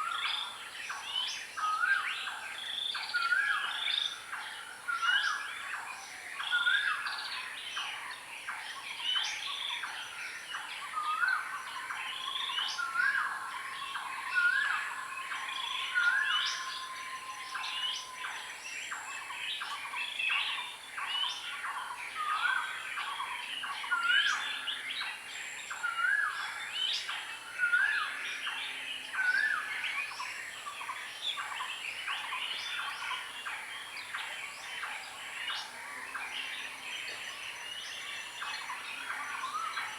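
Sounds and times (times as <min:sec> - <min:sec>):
wild birds chirping: 0:00.0 - 0:39.9.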